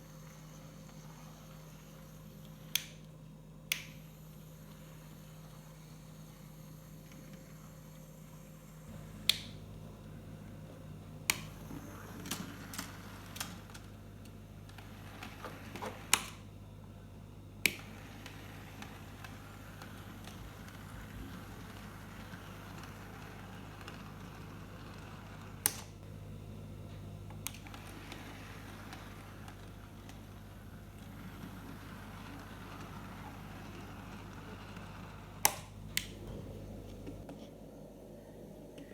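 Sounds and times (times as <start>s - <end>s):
model train motor hum: 0.0s - 3.0s, 3.7s - 9.1s, 11.3s - 13.9s, 17.6s - 26.0s, 27.4s - 36.1s.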